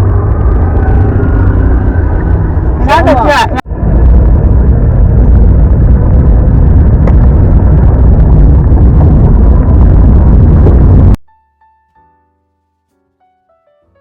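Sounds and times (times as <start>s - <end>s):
car road and wind noise: 0.0s - 11.2s.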